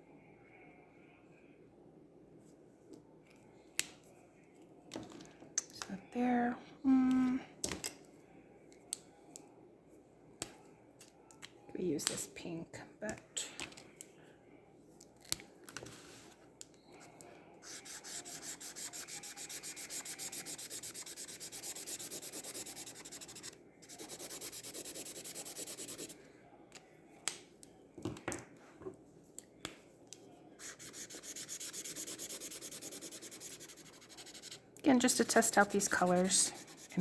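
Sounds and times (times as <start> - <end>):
marker scratching on paper: 17.6 - 26.2, 30.6 - 37.0.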